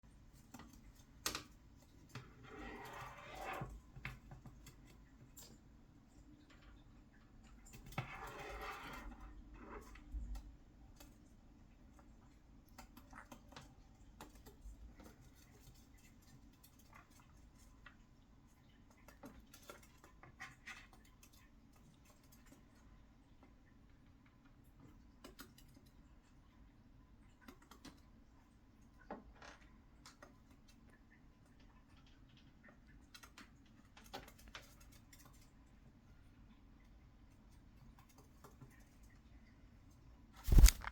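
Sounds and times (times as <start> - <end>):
bird claws scraping slides: 40.4 - 40.9.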